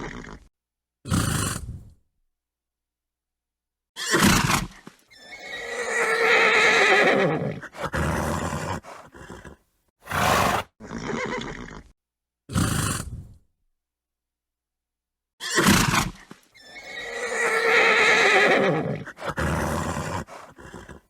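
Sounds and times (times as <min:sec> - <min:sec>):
horse whinnying: 0:04.0 - 0:11.9, 0:15.4 - 0:21.0
horse blowing: 0:10.0 - 0:10.9.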